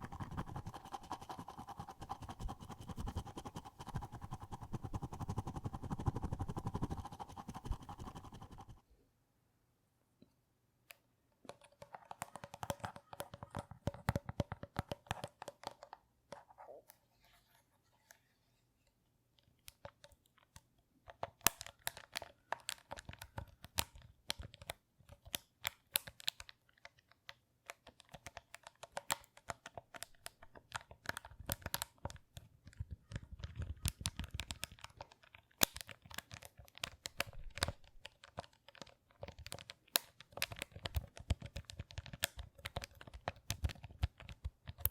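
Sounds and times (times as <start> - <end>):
close crinkling and crackling: 21.2 - 44.9.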